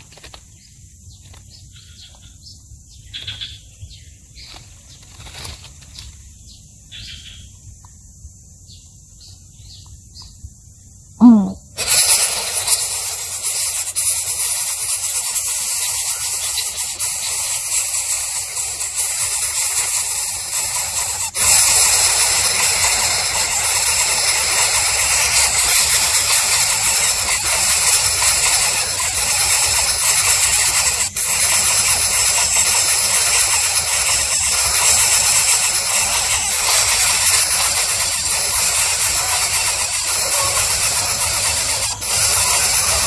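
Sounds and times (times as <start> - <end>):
loud hissing noise: 11.0 - 43.0.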